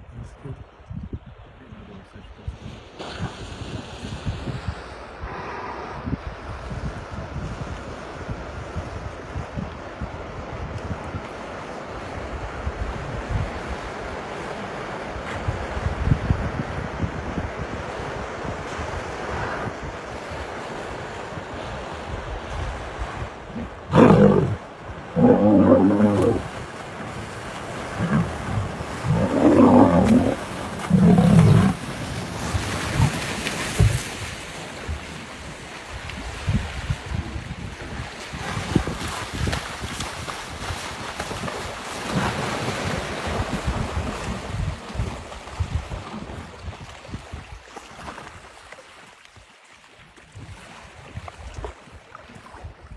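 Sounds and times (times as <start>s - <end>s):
rushing water or wind noise: 2.3s - 52.9s
water rushing: 23.4s - 35.0s
lions snarling and growling: 23.5s - 26.5s, 27.8s - 31.8s.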